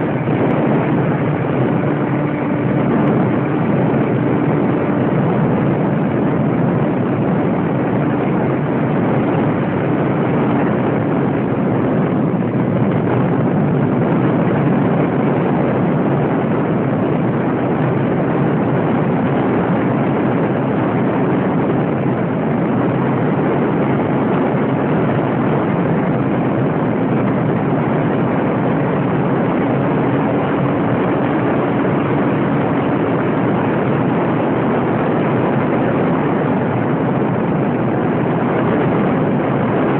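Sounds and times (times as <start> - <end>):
faint motor hum: 0.0 - 24.2
propeller and wind rush: 0.0 - 39.9.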